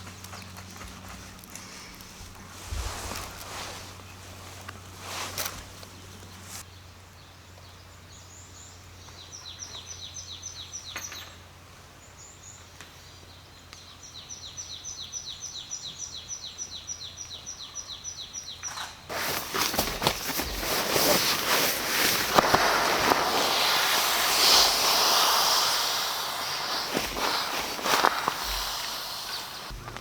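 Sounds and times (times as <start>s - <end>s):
songbird singing rapid trills: 12.1s - 18.8s.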